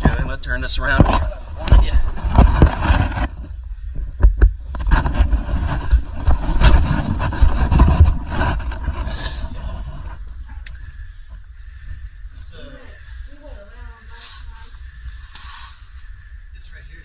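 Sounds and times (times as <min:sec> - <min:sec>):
camera handling bumps and rustling: 0:00.9 - 0:10.7.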